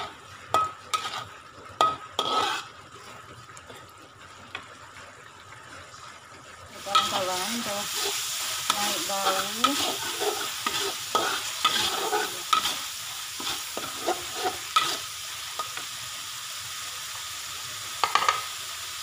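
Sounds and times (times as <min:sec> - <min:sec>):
metal spatula scraping a wok: 0:00.0 - 0:02.8, 0:06.9 - 0:15.8
paste sizzling in hot oil: 0:00.0 - 0:03.8, 0:06.7 - 0:19.0.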